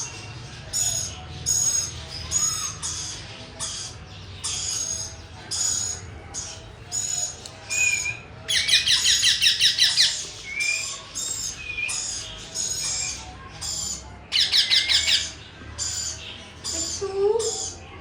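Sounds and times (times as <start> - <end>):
parrot calling: 0.7 - 17.8
parrot chattering trill: 7.7 - 10.2, 14.3 - 15.4.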